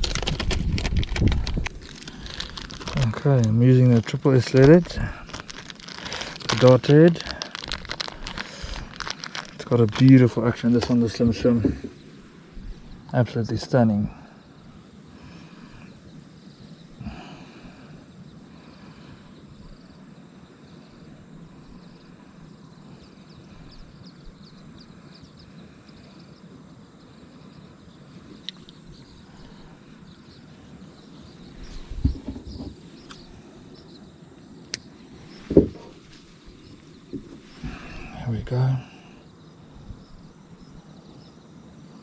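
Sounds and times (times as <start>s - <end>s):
bird chirps: 19.2s - 42.0s
dull knocks: 32.0s - 32.8s.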